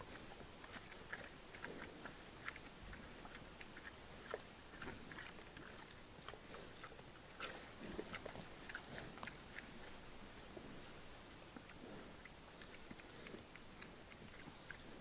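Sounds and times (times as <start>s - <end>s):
animal crunching and chewing: 0.0s - 15.0s.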